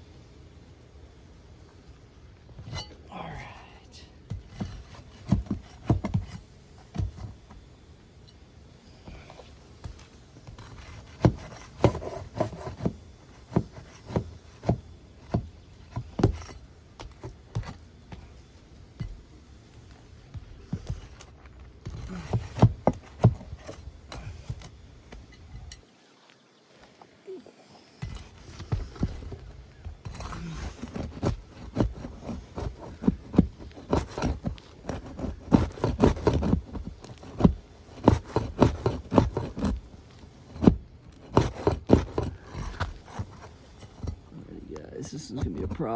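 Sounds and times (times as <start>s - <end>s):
tools scraping on shingles: 4.2s - 7.7s, 9.0s - 25.9s, 27.8s - 45.9s
hand tools knocking on shingles: 9.8s - 18.4s, 20.3s - 24.7s, 28.0s - 39.9s, 40.5s - 44.3s.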